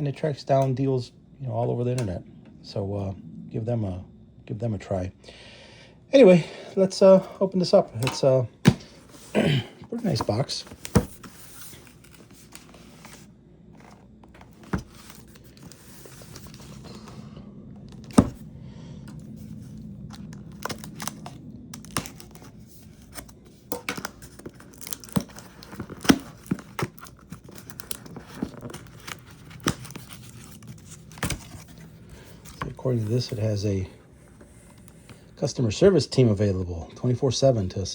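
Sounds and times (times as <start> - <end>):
rustling: 19.1 - 35.3
packaging tearing and crinkling: 19.4 - 33.3.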